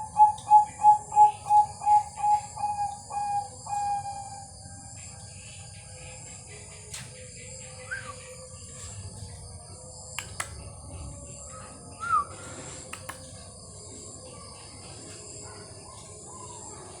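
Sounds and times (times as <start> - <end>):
dove calling: 0.0 - 4.6
sharp clicks: 10.2 - 10.6, 12.9 - 13.3.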